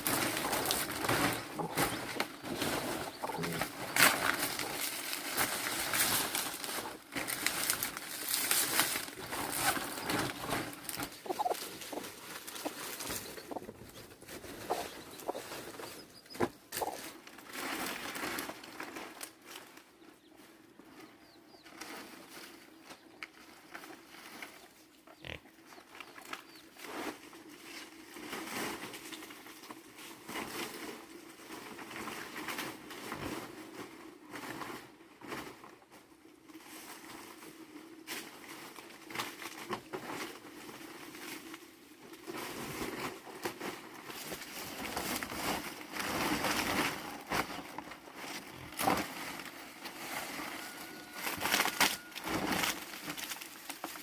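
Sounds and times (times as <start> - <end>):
pigs grunting: 0.0 - 4.8, 25.1 - 25.6
rustling: 0.0 - 54.0.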